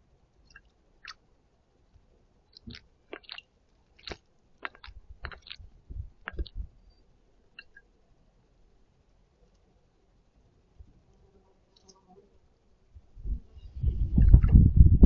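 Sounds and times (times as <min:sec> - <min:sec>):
bird splashing in water: 0:02.6 - 0:03.4, 0:04.0 - 0:05.7.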